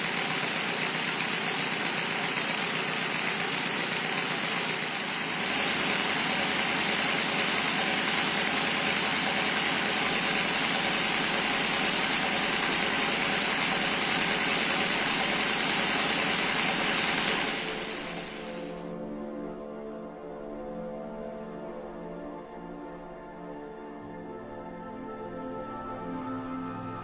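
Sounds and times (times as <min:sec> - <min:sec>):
machine running with dense chatter: 0:00.0 - 0:18.8.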